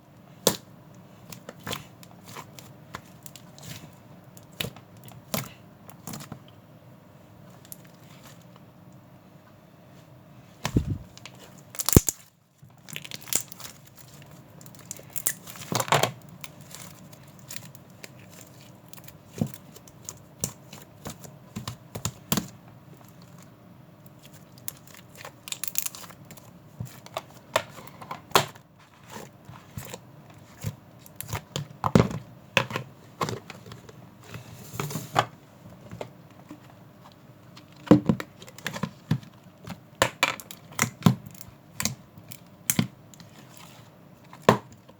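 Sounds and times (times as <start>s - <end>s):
packaging clicks and crinkling rustles: 11.1s - 23.5s, 24.1s - 31.7s.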